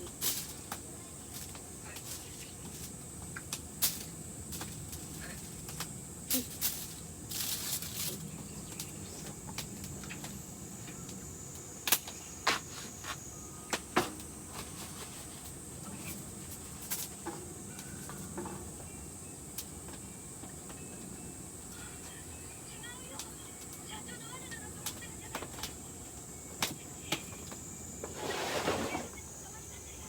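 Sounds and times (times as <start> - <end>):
campfire crackling and popping: 0.0 - 10.4, 22.1 - 27.6.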